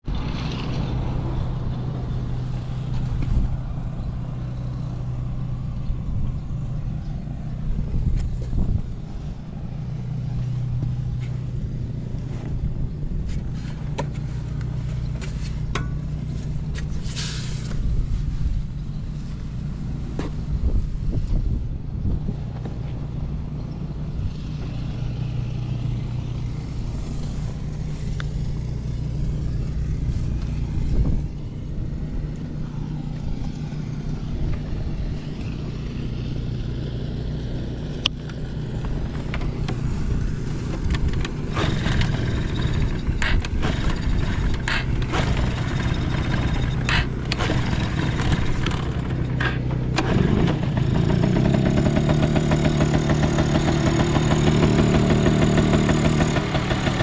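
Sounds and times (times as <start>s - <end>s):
steady low drone: 0.0s - 57.0s
sharp clicks and knocks: 13.3s - 17.0s, 38.1s - 57.0s
moped engine starting and idling: 22.5s - 57.0s.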